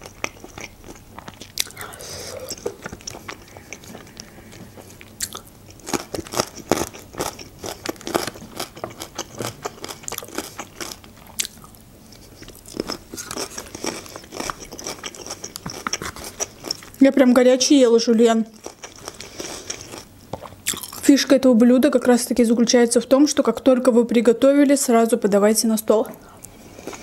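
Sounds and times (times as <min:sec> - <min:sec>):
close-miked chewing: 0:00.0 - 0:17.1, 0:18.4 - 0:21.1.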